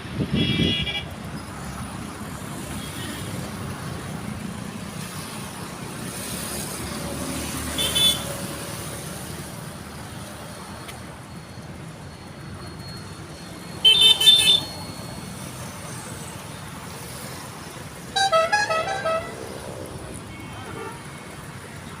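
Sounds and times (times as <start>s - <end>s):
road traffic noise: 0.0s - 22.0s
vehicle horns honking: 0.3s - 1.1s, 7.8s - 8.3s, 13.8s - 14.8s, 18.1s - 19.6s, 20.3s - 21.3s.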